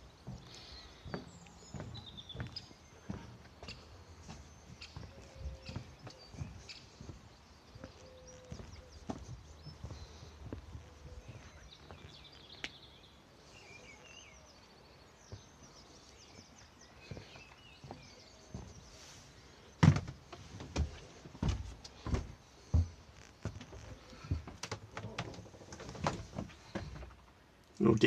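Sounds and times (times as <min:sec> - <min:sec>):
birds chirping faintly: 0:00.0 - 0:28.0.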